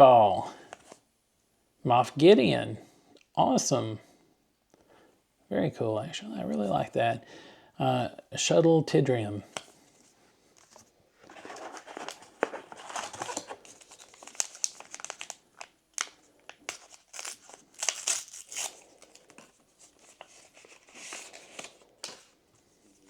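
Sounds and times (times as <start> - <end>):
plastic wrapper crinkling and tearing: 10.6 - 23.0.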